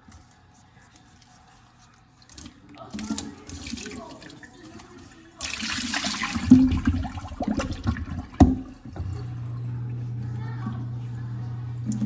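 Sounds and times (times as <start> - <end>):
water running from a tap: 2.3 - 12.0
steady low hum: 8.8 - 12.0.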